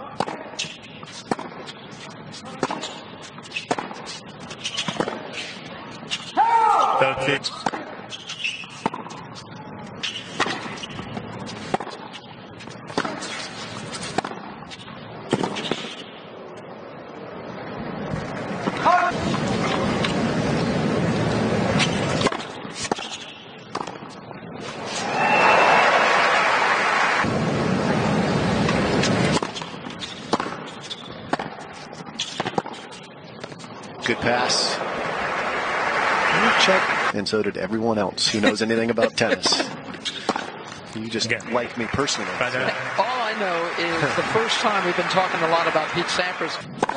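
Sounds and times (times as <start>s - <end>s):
faint background noise: 0.0s - 46.9s
tennis racquet hitting ball: 0.2s - 1.7s, 2.6s - 6.3s, 7.6s - 9.2s, 10.0s - 12.2s, 12.9s - 14.5s, 28.7s - 31.6s, 32.2s - 33.6s, 39.4s - 40.6s
crowd cheering and applauding: 24.9s - 27.3s, 34.0s - 37.1s, 41.3s - 46.6s.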